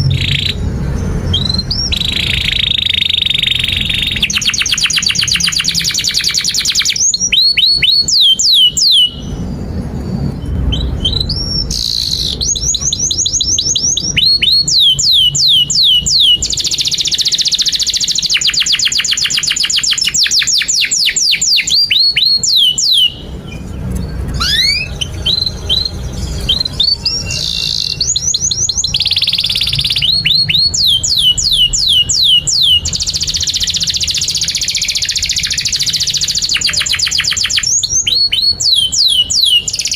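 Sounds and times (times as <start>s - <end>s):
canary singing trills and whistles: 0.0s - 39.9s.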